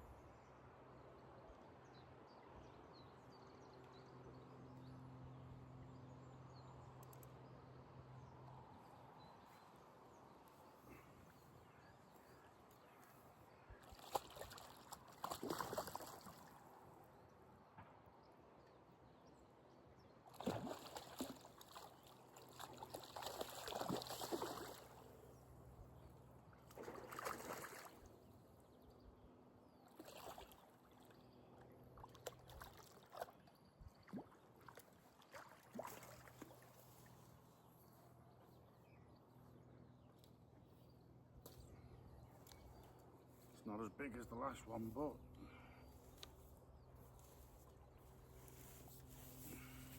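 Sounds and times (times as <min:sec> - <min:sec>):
fish splashing at water surface: 0:13.9 - 0:16.6, 0:20.3 - 0:25.0, 0:26.7 - 0:28.1, 0:34.1 - 0:36.6.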